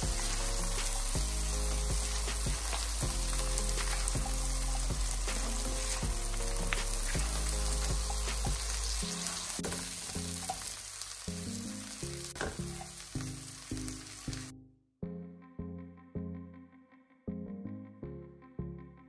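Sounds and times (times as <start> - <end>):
shrimp sizzling in butter: 0.0 - 14.5.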